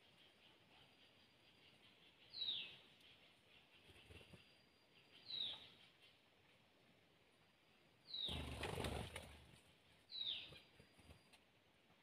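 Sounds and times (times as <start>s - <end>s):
small bird calling: 0.0s - 6.5s
wings fluttering: 8.3s - 9.8s.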